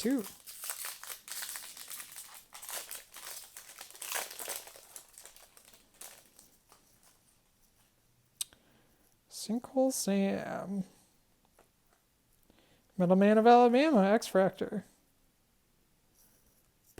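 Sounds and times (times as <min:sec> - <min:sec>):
foil pack crinkling and tearing: 0:00.0 - 0:07.2.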